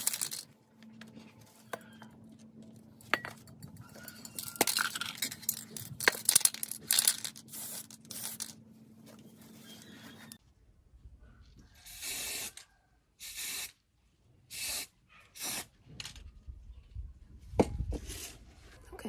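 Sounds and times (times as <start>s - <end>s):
small hard parts clinking: 0.0s - 0.6s, 1.7s - 8.6s.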